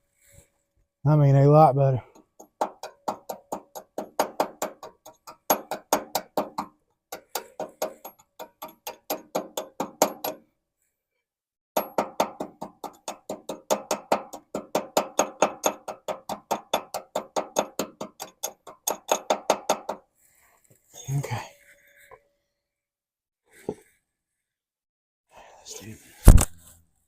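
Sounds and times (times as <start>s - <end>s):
ringing hammer taps on metal: 2.2s - 10.4s, 11.8s - 20.0s.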